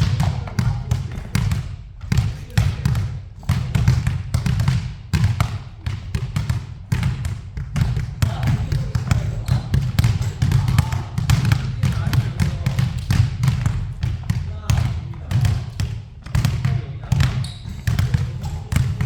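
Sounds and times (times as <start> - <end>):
basketball bouncing on hard floor: 0.0 - 19.0.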